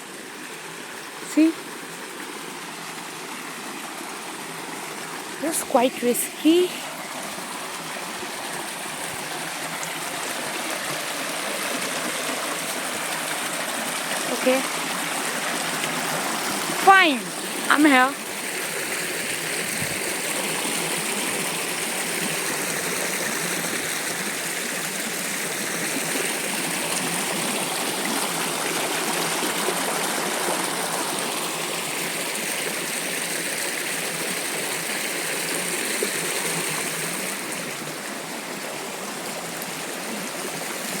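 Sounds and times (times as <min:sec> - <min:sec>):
waterfall over rocks: 0:00.0 - 0:41.0.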